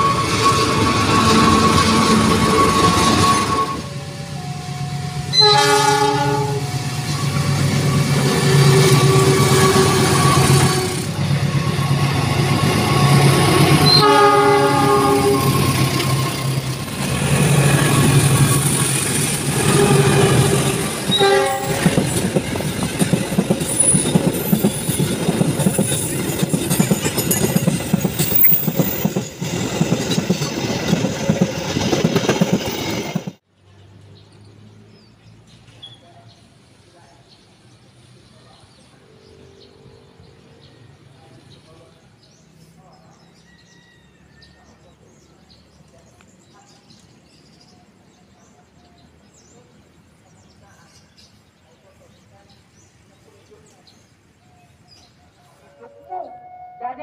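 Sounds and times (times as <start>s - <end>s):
train horn blasts: 0.0s - 12.1s, 13.0s - 16.2s, 19.4s - 22.1s, 55.7s - 57.0s
diesel train engine drone: 0.0s - 33.4s
train wheels on rails: 0.0s - 33.4s.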